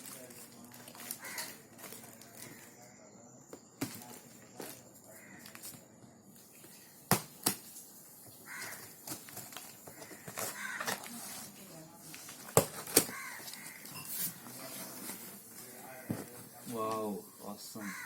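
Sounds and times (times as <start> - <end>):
cardboard packaging knocks and clicks: 3.6 - 4.8, 7.1 - 7.7, 8.6 - 11.1, 12.3 - 13.8.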